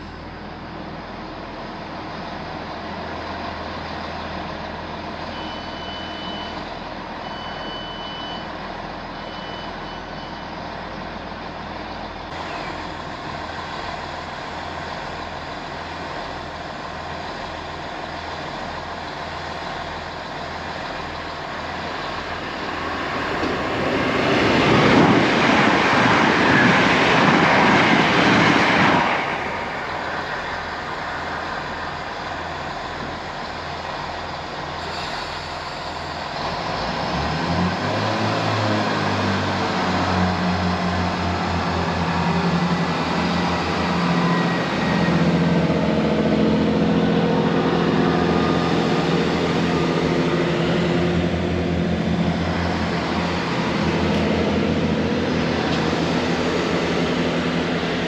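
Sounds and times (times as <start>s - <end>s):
diesel train engine throbbing: 0.0s - 58.0s
loud rushing noise: 21.8s - 31.9s, 36.0s - 58.0s.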